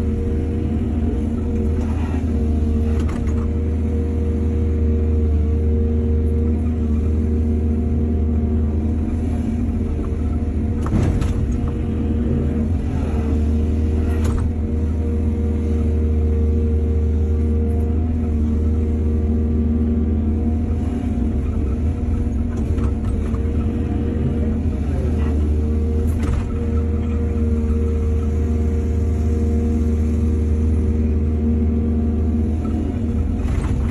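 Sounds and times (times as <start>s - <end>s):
excavator diesel engine running: 0.0s - 33.9s
clunks: 1.3s - 3.6s, 9.8s - 11.9s, 14.0s - 15.1s, 21.3s - 24.4s, 25.1s - 28.4s, 32.6s - 33.9s.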